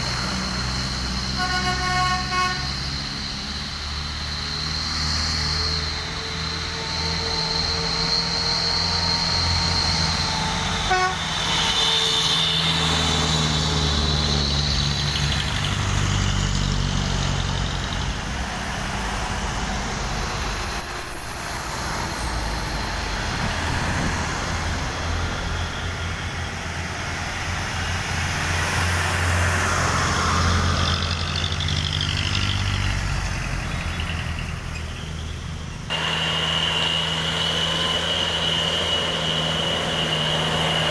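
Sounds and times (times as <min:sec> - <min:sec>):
truck diesel engines rumbling: 0:00.0 - 0:40.9
horn-like tone: 0:01.2 - 0:03.0, 0:09.7 - 0:12.8.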